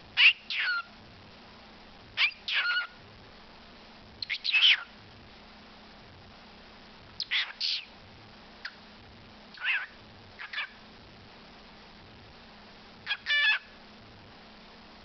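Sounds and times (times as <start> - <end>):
bird chirps and squawks: 0.2 - 0.9, 2.2 - 3.0, 4.2 - 4.9, 7.2 - 7.9, 9.5 - 10.8, 13.0 - 13.8.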